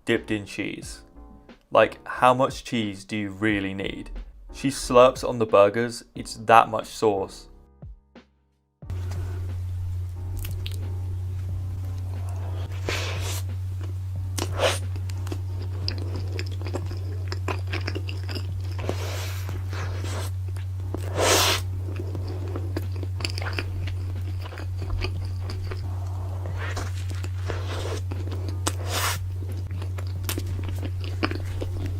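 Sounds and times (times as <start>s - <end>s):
food crunching: 8.9s - 31.9s
slurping: 8.9s - 31.9s
steady low hum: 8.9s - 31.9s
wet chewing and biting: 9.0s - 31.9s.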